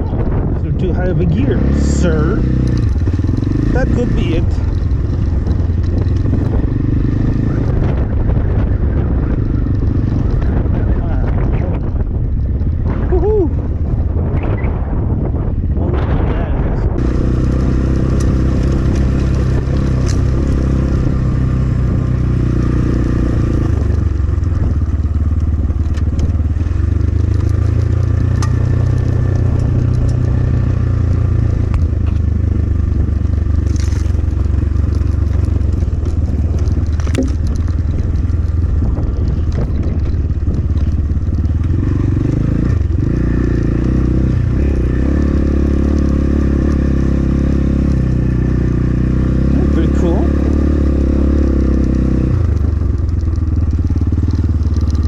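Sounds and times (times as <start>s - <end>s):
dirt bike engine running: 0.0s - 55.0s
tyres clicking on rocks and gravel: 25.3s - 30.6s, 33.4s - 42.9s, 51.7s - 55.0s.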